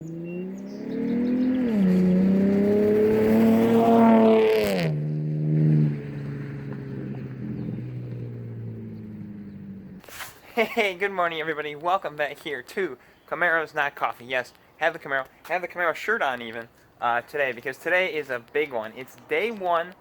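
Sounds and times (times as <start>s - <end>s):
race car engine revving: 0.0s - 10.0s.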